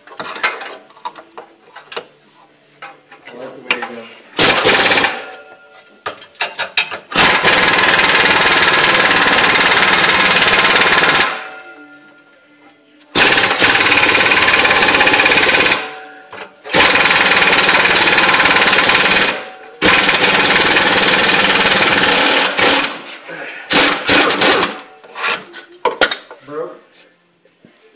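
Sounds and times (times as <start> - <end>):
impact wrench hammering: 6.0 - 11.6, 13.2 - 23.0, 23.7 - 24.9.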